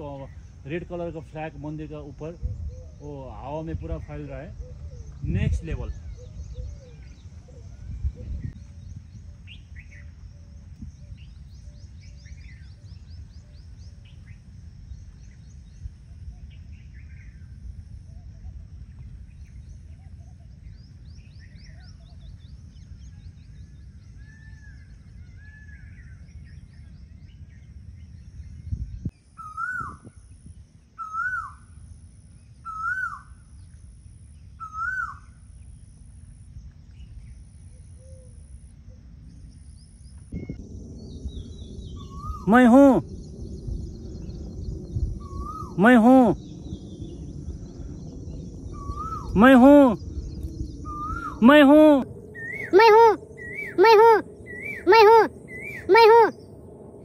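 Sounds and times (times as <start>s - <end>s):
birds chirping and calling: 0.0s - 15.8s, 31.0s - 31.6s, 32.7s - 33.2s, 34.6s - 35.2s, 40.0s - 56.6s
wind rumble on microphone: 0.0s - 57.0s
bird rising-and-falling calls: 31.0s - 31.6s, 32.6s - 33.3s, 34.6s - 35.3s, 40.9s - 56.7s.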